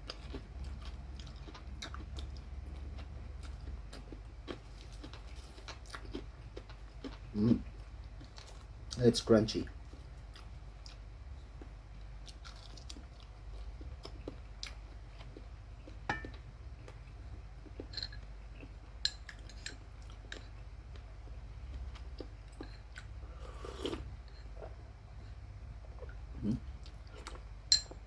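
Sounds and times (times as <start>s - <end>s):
chewing crunchy chicken skin: 0.0s - 8.7s, 11.6s - 16.4s.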